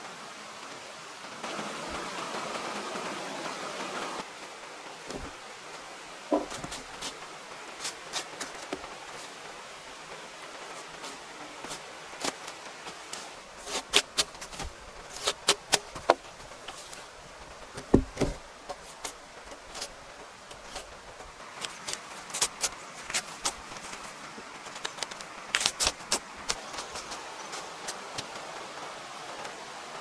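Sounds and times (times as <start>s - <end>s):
steady outdoor hiss: 0.0s - 30.0s
heavy thud: 6.3s - 6.7s.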